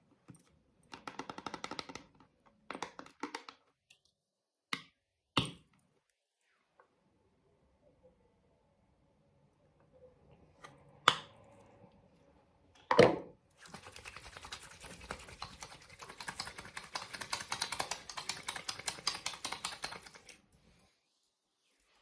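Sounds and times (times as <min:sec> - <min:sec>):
rapid irregular clicking: 0:14.0 - 0:20.3.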